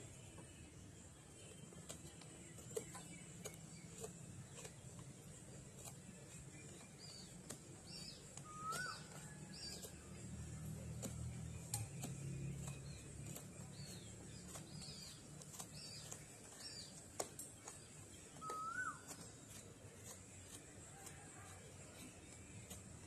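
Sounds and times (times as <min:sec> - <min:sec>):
birds chirping faintly: 0:00.0 - 0:23.0
rising whistled bird call: 0:08.4 - 0:09.0, 0:18.4 - 0:19.0.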